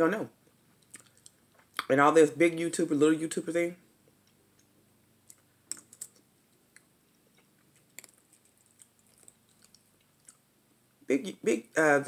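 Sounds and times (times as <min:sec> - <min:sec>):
chewing clicks and smacks: 0:00.8 - 0:01.9, 0:04.3 - 0:10.5.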